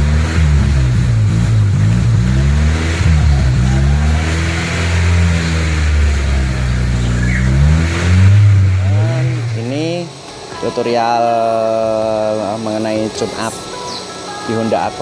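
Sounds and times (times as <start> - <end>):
car engine revving: 0.0 - 10.5.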